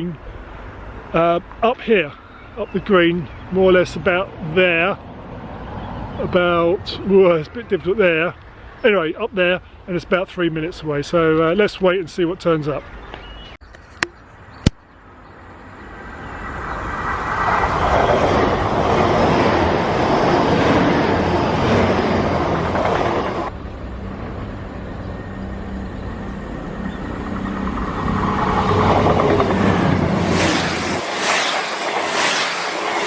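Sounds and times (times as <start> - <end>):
wheels rushing on rail: 15.0 - 33.0
train engine drone: 15.1 - 33.0.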